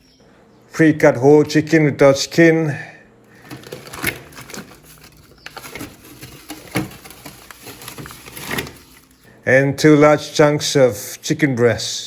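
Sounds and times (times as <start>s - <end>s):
plastic rustling: 3.3s - 9.3s.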